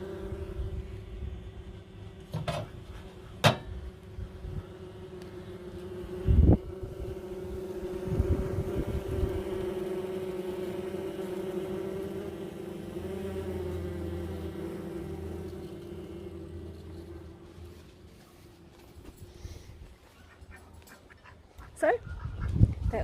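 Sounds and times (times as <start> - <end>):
bee swarm humming: 0.0 - 20.2.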